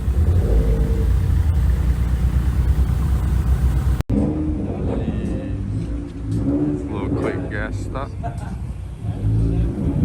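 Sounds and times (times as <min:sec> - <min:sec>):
car engine running: 0:00.0 - 0:04.1.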